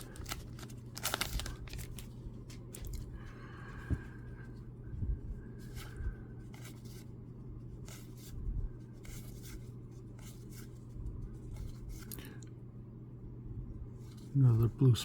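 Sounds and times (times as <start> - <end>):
cards being flipped through: 0.0 - 3.1, 11.4 - 12.3
low steady hum: 0.0 - 15.0.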